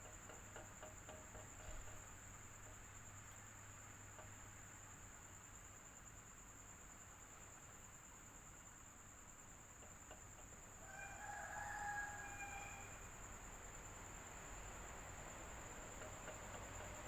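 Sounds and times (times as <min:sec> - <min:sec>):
faint drawn-out pitched call: 0:10.9 - 0:13.1.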